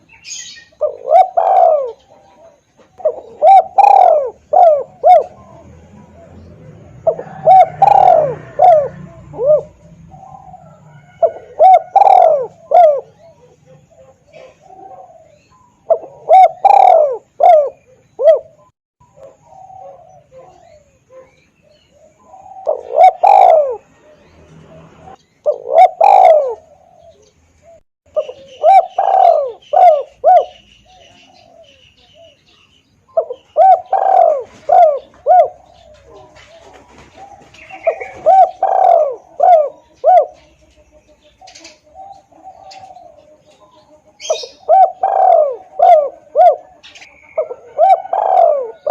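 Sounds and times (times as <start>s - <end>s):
dove cooing: 0.0s - 48.9s.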